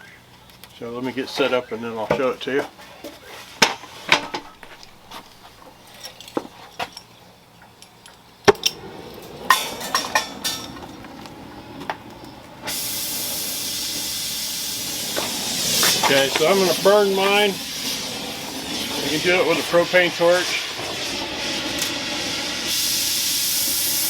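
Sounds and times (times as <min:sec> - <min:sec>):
torch ignition snap: 0:03.6 - 0:05.8, 0:08.4 - 0:24.0
torch flame hissing: 0:03.8 - 0:06.6, 0:08.5 - 0:24.0.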